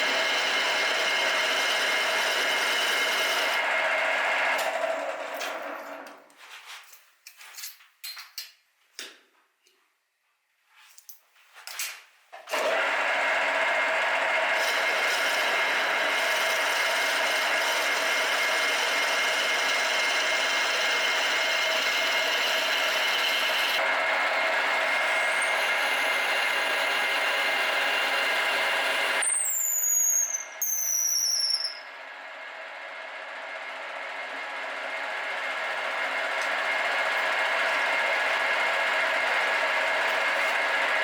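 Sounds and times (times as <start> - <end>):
power tool squealing: 0.0 - 3.7, 14.4 - 23.8, 24.7 - 32.0.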